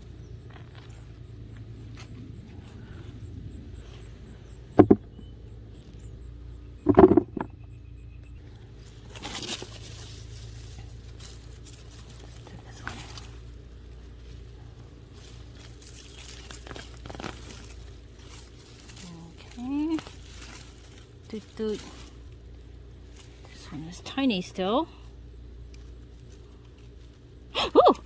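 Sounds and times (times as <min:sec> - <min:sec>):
low steady hum: 0:00.0 - 0:28.0
earth scraping and rustling: 0:06.8 - 0:07.6, 0:08.4 - 0:27.5.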